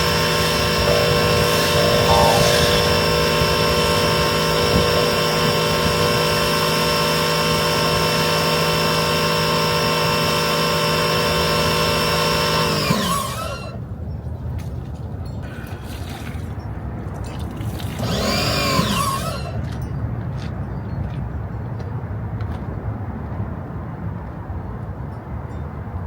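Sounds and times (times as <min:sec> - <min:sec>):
motor running and winding down: 0:00.0 - 0:13.8, 0:18.0 - 0:19.6.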